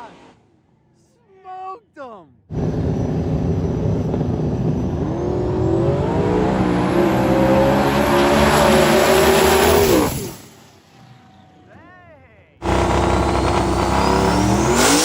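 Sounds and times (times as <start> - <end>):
drag racing engine at full throttle: 2.5 - 11.6, 12.6 - 15.0.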